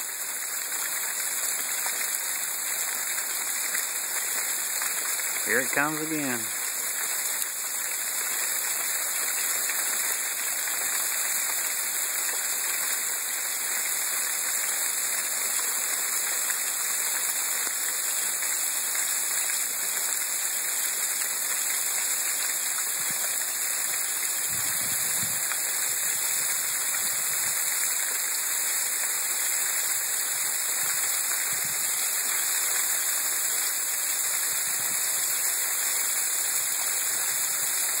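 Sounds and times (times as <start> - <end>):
sleet and rain falling hard: 0.0 - 38.0.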